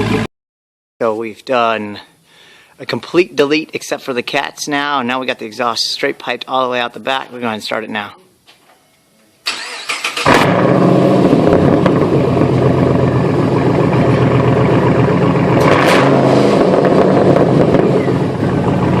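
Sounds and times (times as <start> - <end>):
car engine cranking and idling: 0.0 - 0.3, 9.5 - 19.0.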